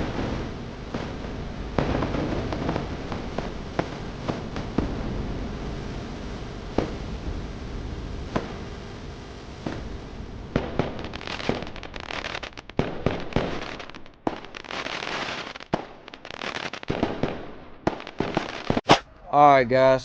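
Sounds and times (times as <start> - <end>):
sharp cracks and pops: 8.2 - 8.8, 10.6 - 19.1.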